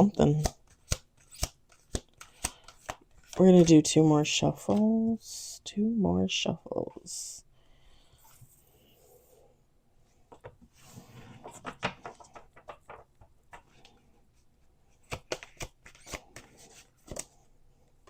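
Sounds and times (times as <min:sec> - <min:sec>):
cards being shuffled by hand: 0:00.0 - 0:05.2, 0:10.7 - 0:14.0, 0:14.8 - 0:17.6.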